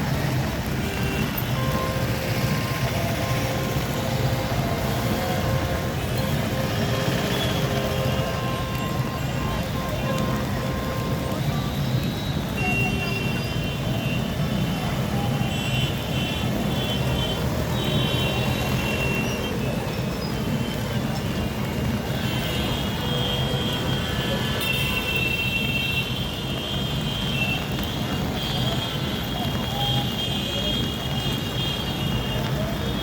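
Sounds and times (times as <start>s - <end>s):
vehicle engines running: 0.0s - 25.0s.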